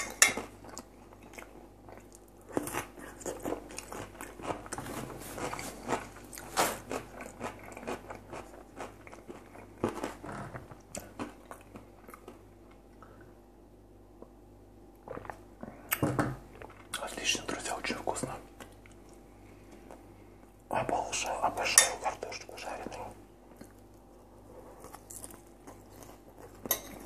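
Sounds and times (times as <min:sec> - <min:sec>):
crunching food: 0:00.4 - 0:13.2, 0:23.5 - 0:27.0
wet chewing: 0:00.4 - 0:13.3.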